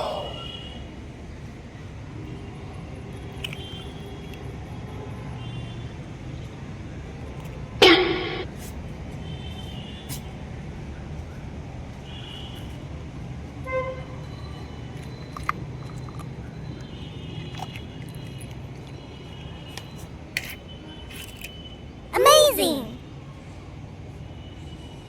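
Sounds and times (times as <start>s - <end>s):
faint high tones: 7.8s - 8.5s
horn toot: 7.8s - 8.5s.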